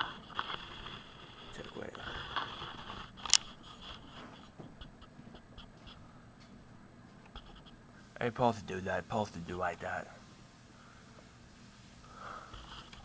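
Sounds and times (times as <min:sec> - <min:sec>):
low steady hiss: 0:03.2 - 0:13.0.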